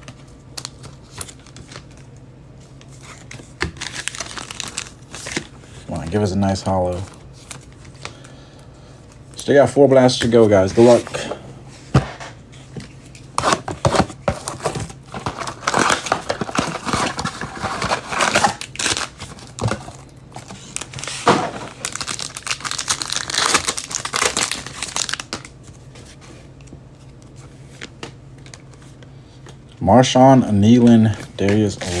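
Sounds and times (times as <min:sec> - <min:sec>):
wrappers crinkling and tearing: 0:02.8 - 0:06.3, 0:14.4 - 0:25.7.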